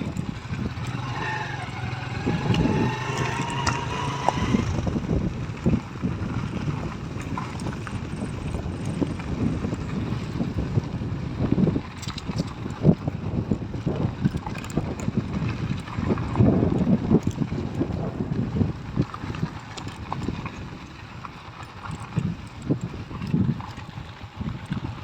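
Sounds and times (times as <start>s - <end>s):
vehicle driving rumble: 0.0s - 14.2s
wind buffeting microphone: 0.0s - 25.0s.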